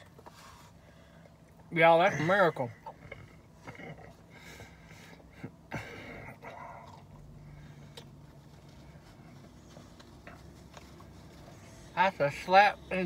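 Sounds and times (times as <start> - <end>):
man chewing food: 2.7 - 11.6.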